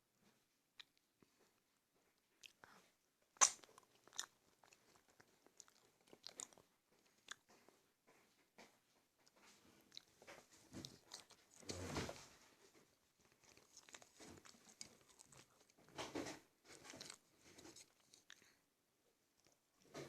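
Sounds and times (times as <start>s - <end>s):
person chewing food: 2.2s - 7.8s, 9.2s - 18.6s
mouth clicks: 3.4s - 4.3s.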